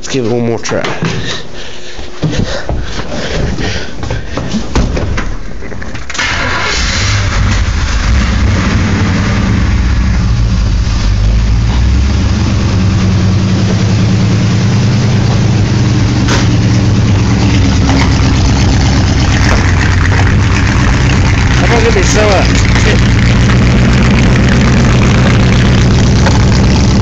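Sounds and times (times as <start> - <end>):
pickup engine starting and running: 6.0 - 27.0.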